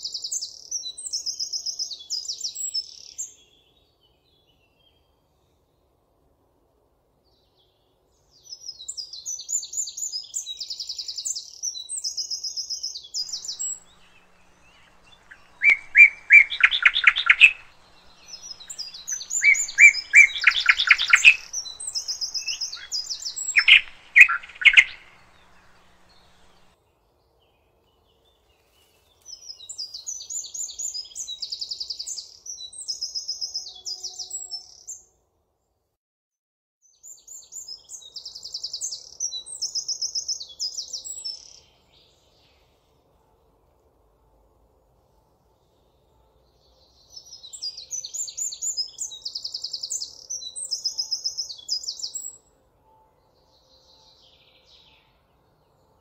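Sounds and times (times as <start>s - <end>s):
songbirds trilling: 13.2s - 26.7s.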